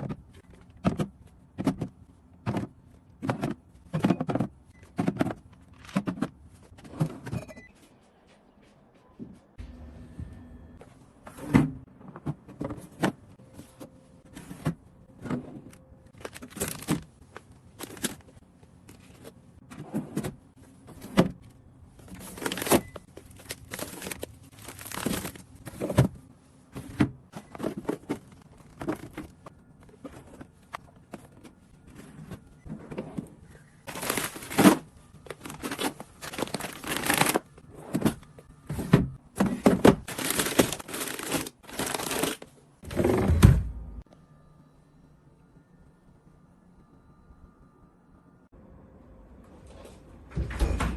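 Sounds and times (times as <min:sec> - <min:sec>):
items knocking and clattering: 0:00.0 - 0:07.4
plastic packaging crinkling: 0:22.2 - 0:25.4, 0:33.9 - 0:37.4, 0:40.1 - 0:42.4.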